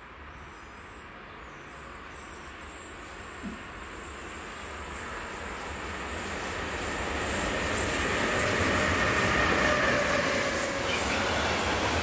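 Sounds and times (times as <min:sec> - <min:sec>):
freight train passing: 0:00.0 - 0:12.0
wheels squealing on curved track: 0:06.8 - 0:11.6.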